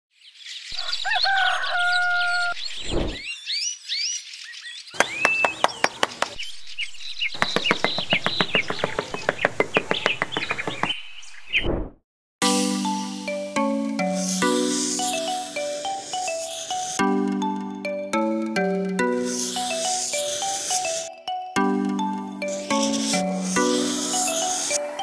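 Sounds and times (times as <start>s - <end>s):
small birds chirping: 0.2s - 11.8s, 14.1s - 17.1s, 19.1s - 25.0s
rooster crowing: 0.8s - 2.6s.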